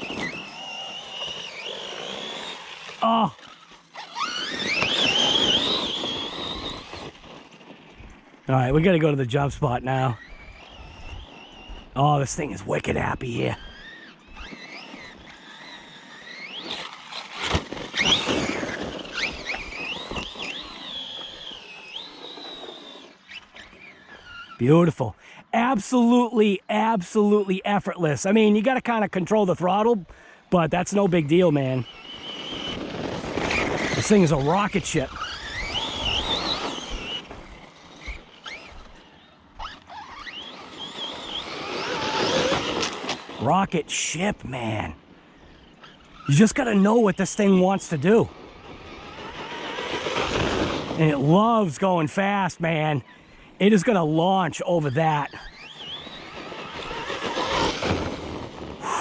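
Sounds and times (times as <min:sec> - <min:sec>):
rc truck electric motor whining: 0:00.0 - 0:26.2, 0:29.6 - 0:54.2, 0:54.8 - 0:59.0
tyres on dirt: 0:00.0 - 0:59.0.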